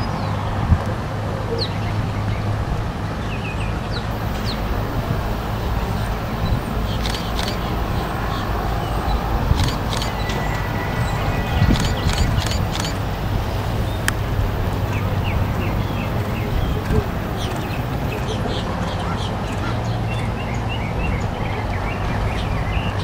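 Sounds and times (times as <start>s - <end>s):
low outdoor rumble: 0.0s - 23.0s
birds chirping: 1.3s - 23.0s
sharp clicks: 6.9s - 7.8s, 9.5s - 10.4s, 11.6s - 13.0s.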